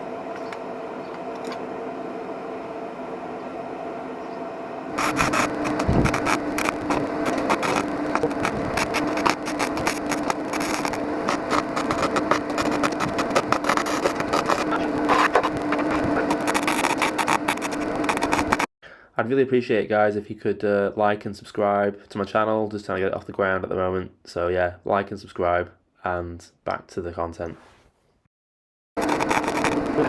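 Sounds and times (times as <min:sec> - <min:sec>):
welder humming: 0:00.0 - 0:18.7, 0:29.0 - 0:30.0
welding arc crackling: 0:04.9 - 0:18.7, 0:29.0 - 0:30.0.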